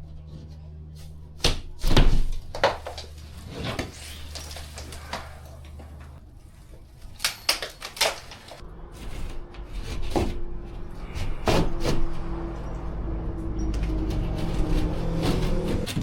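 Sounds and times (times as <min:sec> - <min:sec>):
knocks and clatter of handling: 0:01.8 - 0:12.0.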